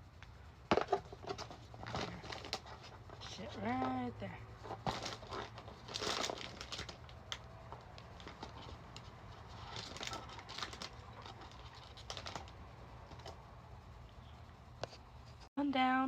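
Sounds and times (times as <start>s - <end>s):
hands handling packaging: 0.2s - 4.0s, 4.6s - 13.4s.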